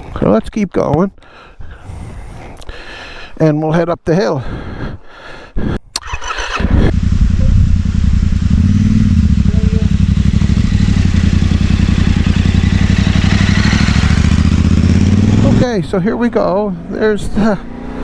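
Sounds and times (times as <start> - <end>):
motorcycle engine throbbing: 6.1 - 16.0.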